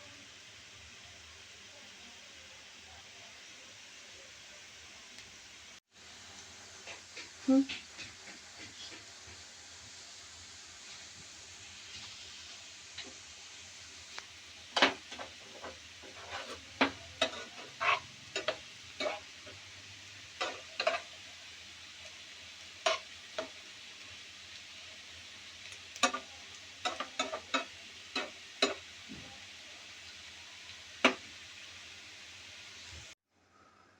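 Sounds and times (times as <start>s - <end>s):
food sizzling in a pan: 0.0s - 33.2s
spatula scraping and knocking pan: 6.8s - 9.4s, 14.1s - 21.3s, 25.9s - 29.3s, 31.0s - 31.3s.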